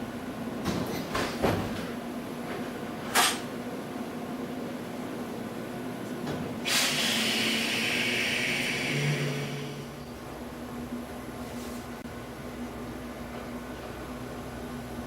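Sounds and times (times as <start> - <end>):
railcar equipment humming: 0.0 - 15.0
compressed air hissing: 6.6 - 9.8.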